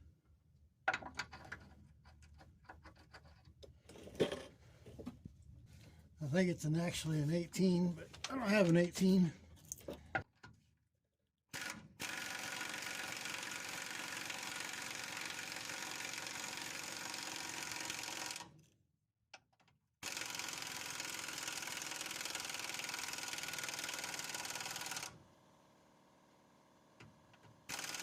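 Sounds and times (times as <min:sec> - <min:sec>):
impact wrench running: 0:20.0 - 0:25.1, 0:27.7 - 0:28.0.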